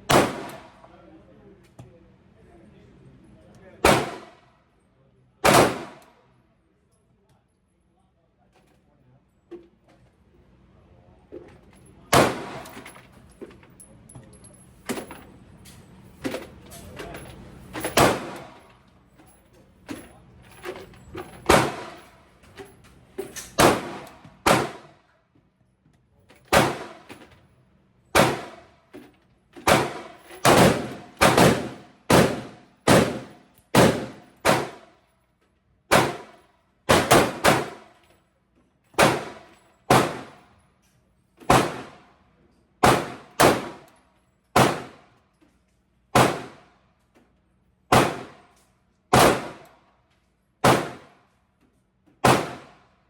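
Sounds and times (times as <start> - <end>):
pistol shots indoors: 0.0 - 0.9, 3.8 - 4.5, 5.4 - 6.4, 12.1 - 12.8, 17.9 - 18.6, 21.5 - 22.2, 23.4 - 25.1, 26.5 - 27.1, 28.1 - 28.8, 29.6 - 35.1, 35.9 - 38.0, 38.9 - 40.4, 41.5 - 42.2, 42.8 - 43.9, 44.5 - 45.1, 46.1 - 46.8, 47.9 - 49.8, 50.6 - 51.4, 52.2 - 53.0.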